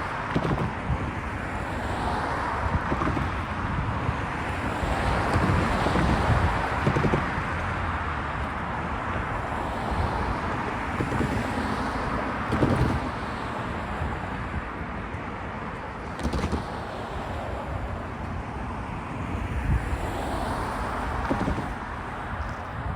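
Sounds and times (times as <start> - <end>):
heavy knocks of train wheels: 0.0 - 1.2, 5.1 - 7.7
wind on microphone: 0.0 - 15.2, 16.0 - 22.9
freight cars rumbling on rails: 0.0 - 22.9.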